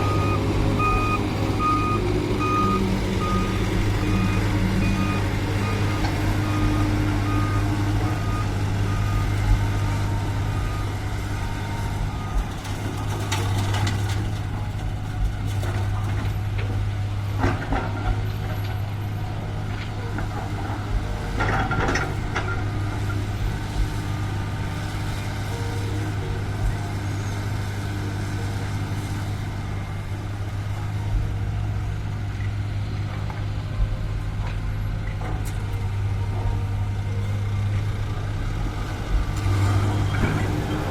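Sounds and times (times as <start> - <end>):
reversing alarm beeping: 0.0 - 13.0
diesel truck engines running: 0.0 - 40.9.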